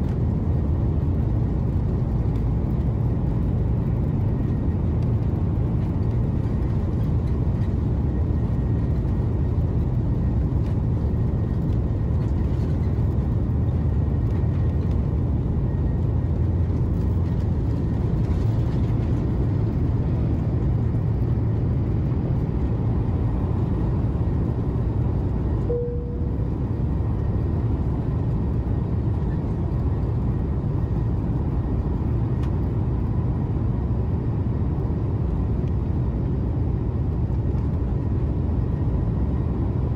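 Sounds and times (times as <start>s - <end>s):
airliner cabin roar: 0.0s - 39.9s
short single beep: 25.7s - 26.4s.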